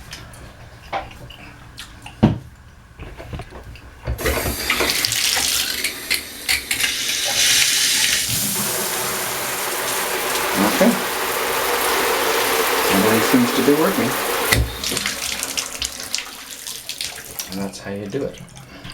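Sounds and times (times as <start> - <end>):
water running from bathtub spout: 4.2 - 18.9.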